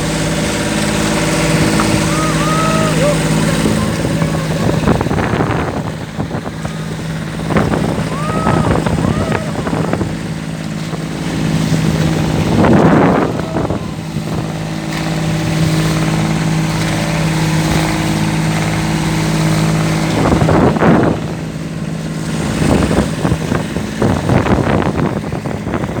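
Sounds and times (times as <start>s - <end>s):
small boat engine running: 0.0s - 26.0s.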